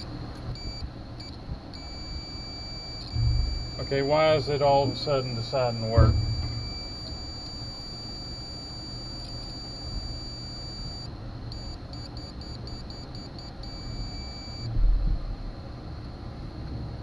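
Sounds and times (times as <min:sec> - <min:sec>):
multimeter beeping: 0:00.0 - 0:14.7
dull thump: 0:03.0 - 0:07.2.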